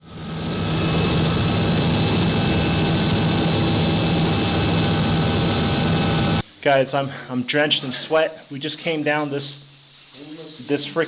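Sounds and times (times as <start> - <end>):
helicopter turbine and rotor: 0.0 - 6.4.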